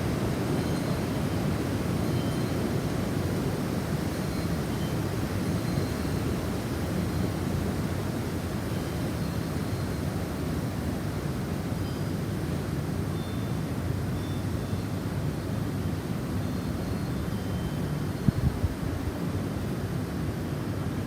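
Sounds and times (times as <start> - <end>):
faint wind chime tones: 0.4 - 3.1, 4.0 - 7.7, 8.6 - 10.2, 11.6 - 15.0, 16.3 - 18.6
wind blowing with deep rumble: 18.2 - 19.2.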